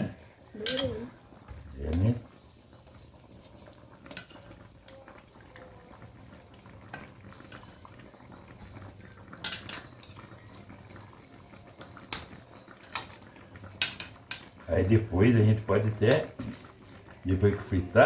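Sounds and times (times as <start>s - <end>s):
food bubbling and sizzling: 0.0s - 18.0s
metal utensil clinking on pot: 0.6s - 1.0s, 3.3s - 5.0s, 9.3s - 10.3s, 12.1s - 14.5s.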